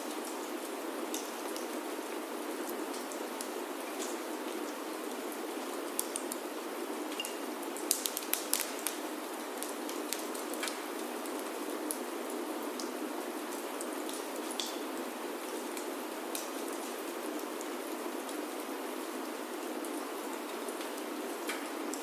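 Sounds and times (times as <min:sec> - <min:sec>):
wood fire crackling: 0:00.0 - 0:14.8
rain on a wooden roof: 0:00.0 - 0:22.0.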